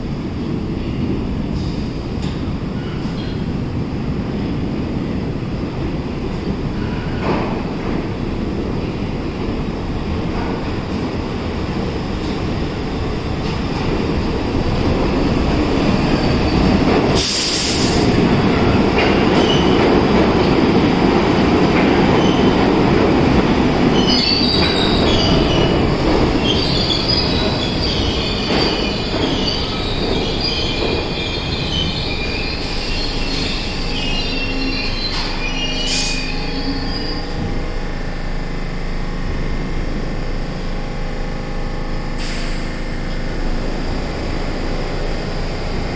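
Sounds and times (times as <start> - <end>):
subway train rumbling: 0.0 - 45.9
short hiss: 17.2 - 18.3
wheel squeal on track: 26.5 - 37.4.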